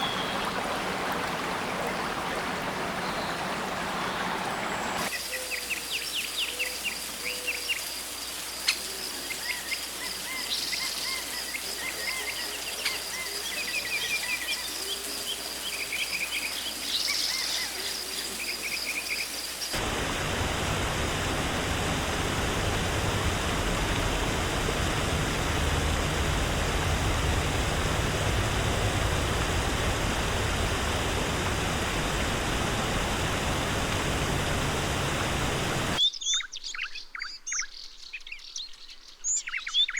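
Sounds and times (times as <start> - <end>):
rushing water: 0.0 - 36.0
bird chirps: 36.0 - 39.9.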